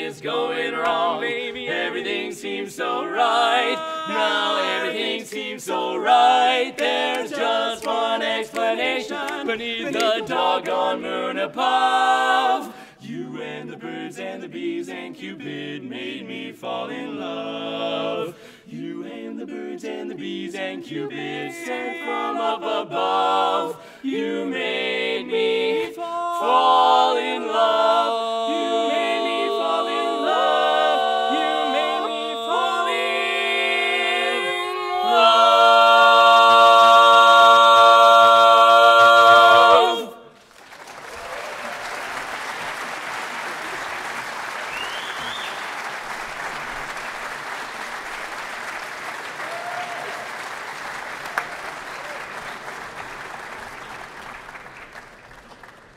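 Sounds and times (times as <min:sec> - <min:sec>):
a cappella group singing: 0:00.0 - 0:40.4
audience applauding: 0:40.4 - 0:55.9.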